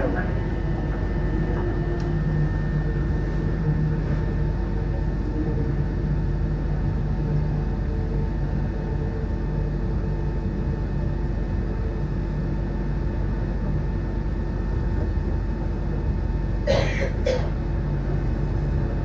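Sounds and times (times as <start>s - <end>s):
wheels rumbling on track: 0.0s - 8.2s
steady low hum: 0.0s - 19.0s.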